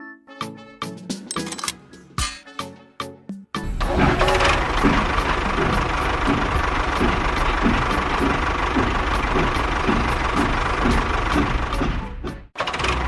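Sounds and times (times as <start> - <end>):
regular low knocking: 3.6 - 12.4.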